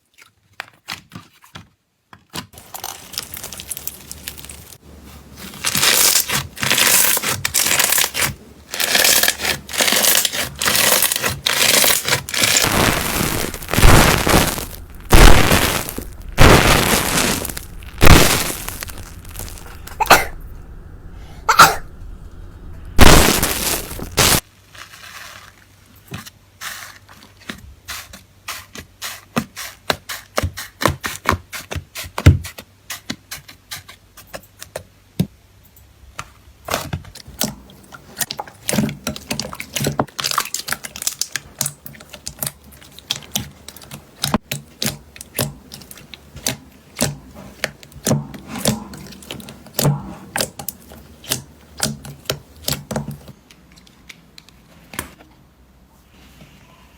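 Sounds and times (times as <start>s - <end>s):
slime squelching: 11.6s - 24.4s.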